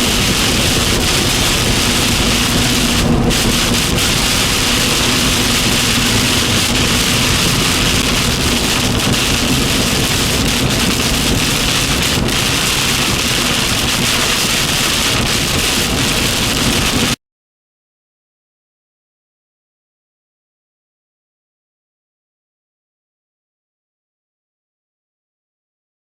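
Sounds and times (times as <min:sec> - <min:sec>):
torrential rain pouring: 0:00.0 - 0:17.2.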